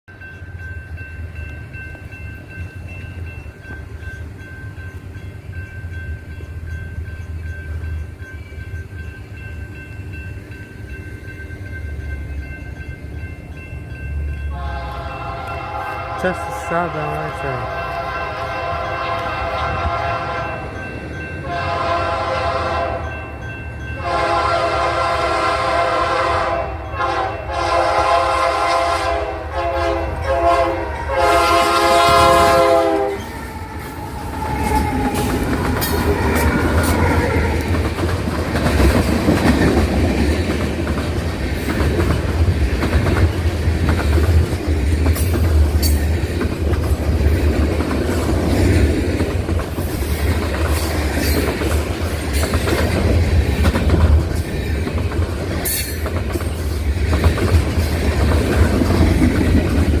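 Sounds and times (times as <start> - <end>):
train rumbling past: 0.1 - 60.0
locomotive air horn blasts: 14.5 - 20.6, 21.4 - 23.0, 24.0 - 33.3
wheels clicking over rail joints: 33.0 - 60.0.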